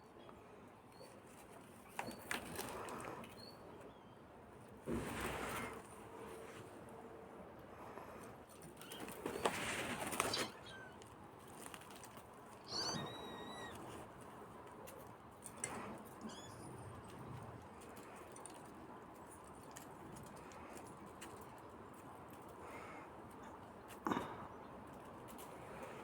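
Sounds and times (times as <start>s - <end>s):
kitten scrambling rustle: 8.6s - 21.4s.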